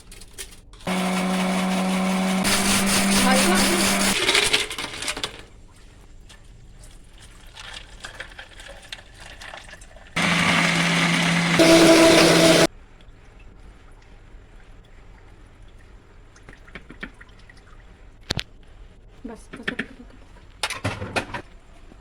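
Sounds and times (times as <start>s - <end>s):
electric blender motor running: 0.9s - 4.2s, 10.2s - 12.7s.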